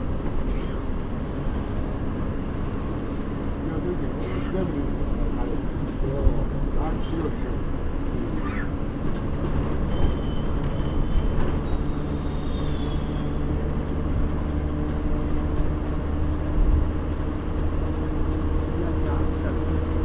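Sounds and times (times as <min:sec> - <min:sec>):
bus engine hum: 0:00.0 - 0:20.0
road rumble: 0:00.0 - 0:20.0
thin high squeal: 0:09.9 - 0:13.6.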